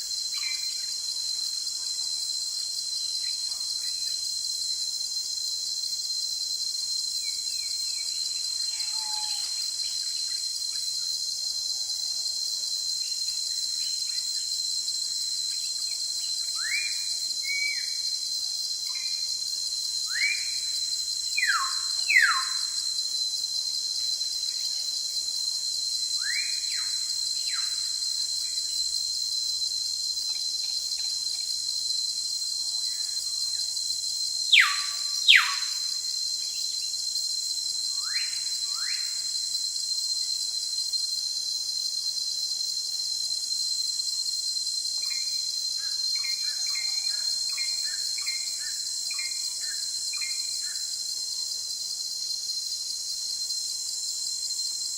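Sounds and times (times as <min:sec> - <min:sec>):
insect drone: 0:00.0 - 0:54.9.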